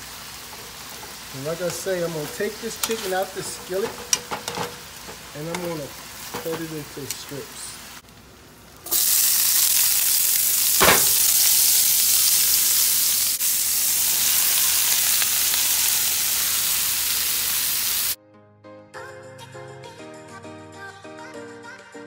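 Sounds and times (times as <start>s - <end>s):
spatula stirring: 0.0s - 6.7s
vegetables sizzling in a skillet: 0.0s - 18.2s
music: 18.2s - 22.0s.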